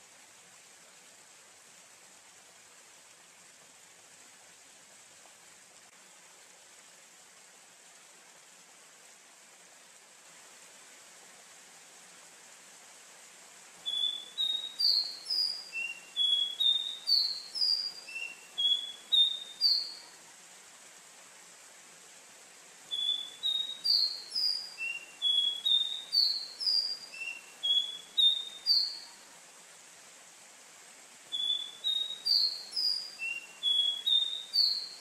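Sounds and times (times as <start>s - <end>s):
faint steady hiss: 0.0s - 35.0s
bird whistling song: 13.8s - 20.0s, 22.9s - 29.1s, 31.3s - 35.0s.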